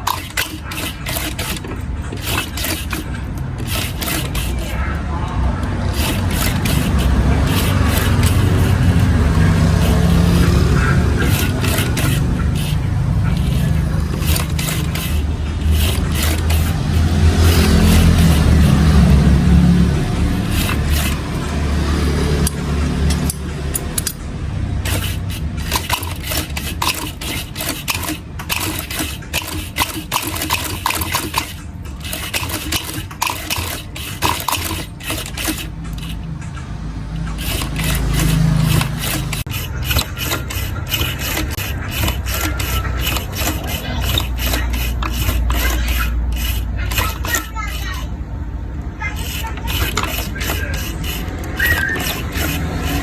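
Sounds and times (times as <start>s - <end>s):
scraping on leather strap: 0.0s - 5.0s, 5.6s - 24.2s, 24.8s - 36.4s, 37.2s - 48.1s, 49.0s - 53.0s
passing traffic rumble: 0.0s - 30.2s, 31.3s - 53.0s.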